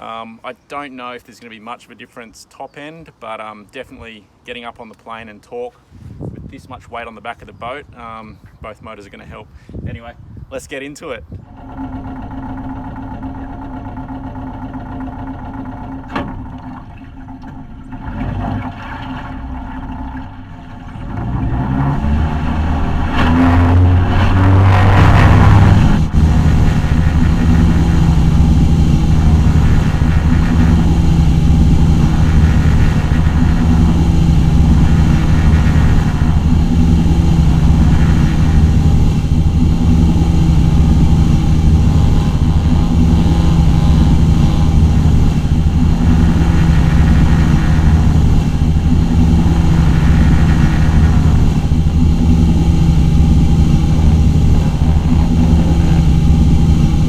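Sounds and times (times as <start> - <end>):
outboard motors droning: 11.4 - 57.0.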